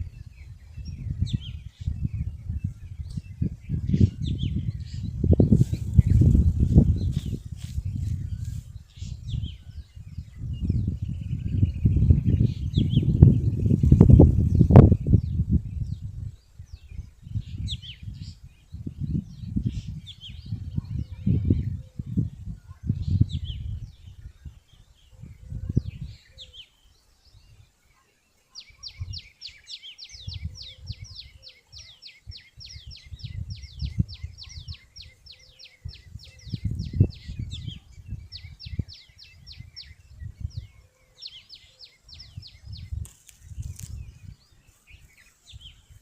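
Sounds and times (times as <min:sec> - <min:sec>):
bird chirping: 0:22.9 - 0:46.0.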